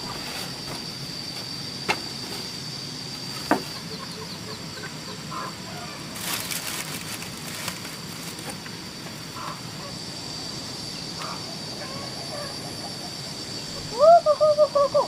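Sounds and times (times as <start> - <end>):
high-pitched whine: 0.0 - 15.0
chickens clucking: 3.5 - 6.4
rustling: 6.2 - 8.6.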